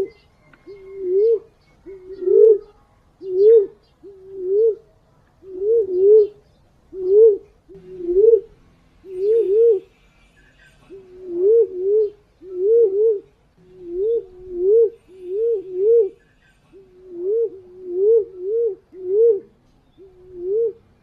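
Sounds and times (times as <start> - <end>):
pigeon cooing: 0.0 - 9.9, 10.9 - 21.0.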